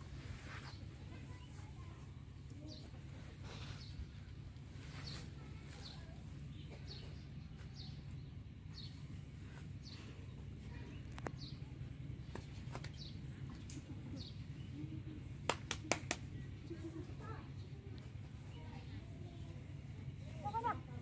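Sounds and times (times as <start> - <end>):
steady low rumble: 0.0 - 21.0
small bird chirping: 0.4 - 14.8.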